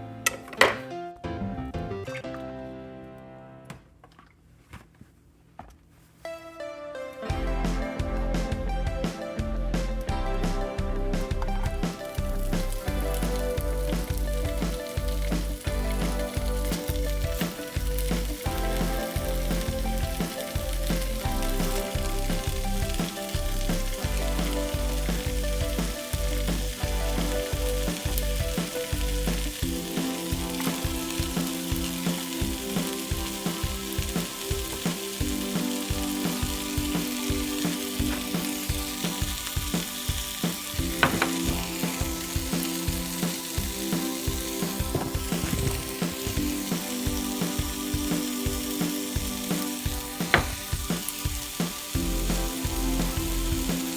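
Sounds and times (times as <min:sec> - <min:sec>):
background music with a beat: 0:07.2 - 0:53.9
food sizzling as it fries: 0:11.8 - 0:53.9.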